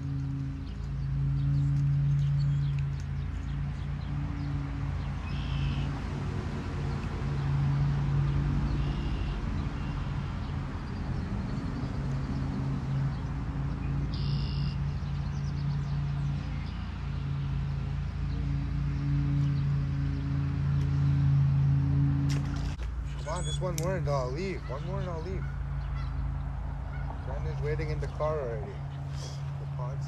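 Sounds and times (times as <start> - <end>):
low hum: 0.0 - 30.0
high bird chirps: 5.2 - 5.9, 14.1 - 14.8, 23.1 - 26.2.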